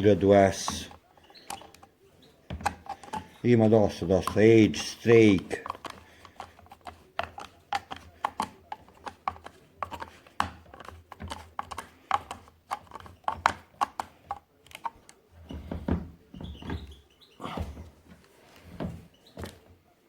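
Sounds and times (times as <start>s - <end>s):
clicks and taps of small parts: 5.3s - 15.2s.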